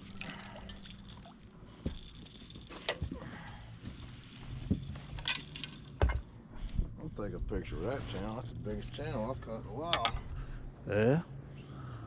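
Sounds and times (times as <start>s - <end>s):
knocks and clinks in a boat: 0.0s - 7.0s.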